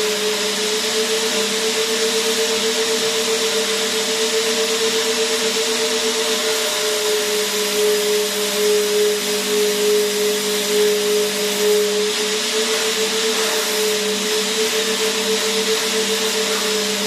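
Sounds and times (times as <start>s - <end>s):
vacuum cleaner motor running: 0.0s - 17.0s.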